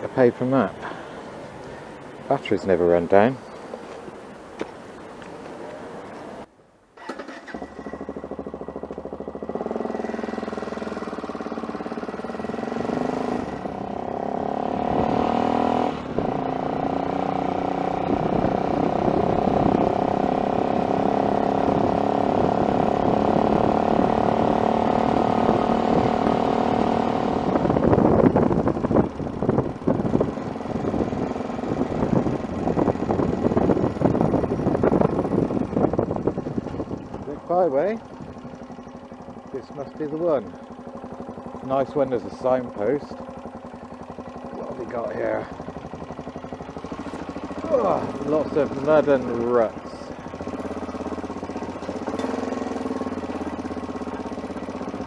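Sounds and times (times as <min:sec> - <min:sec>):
motorcycle engine accelerating: 0:05.0 - 0:55.0
gusty wind rushing: 0:17.9 - 0:37.3.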